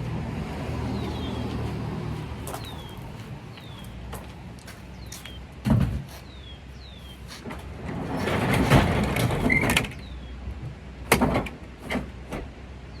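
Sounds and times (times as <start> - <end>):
bird chirping: 0.9 - 1.8, 2.5 - 4.1, 6.2 - 7.4
rattling clatter: 7.4 - 10.1.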